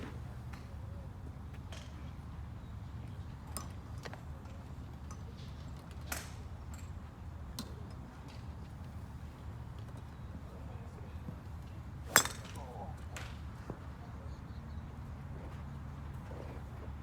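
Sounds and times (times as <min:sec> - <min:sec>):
golf clubs striking balls: 0:12.1 - 0:12.8.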